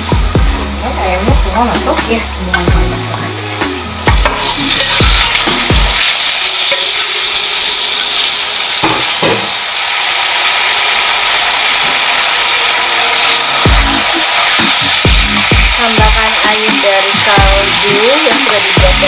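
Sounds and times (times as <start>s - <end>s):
chicken sizzling in hot oil: 0.0s - 19.0s
spatula stirring in wok: 4.1s - 8.3s.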